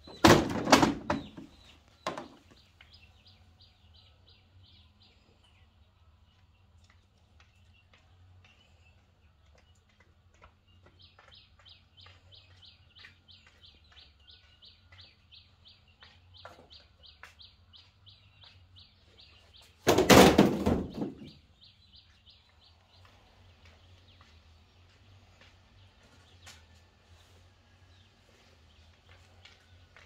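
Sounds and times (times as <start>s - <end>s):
small bird chirping: 7.4s - 19.8s.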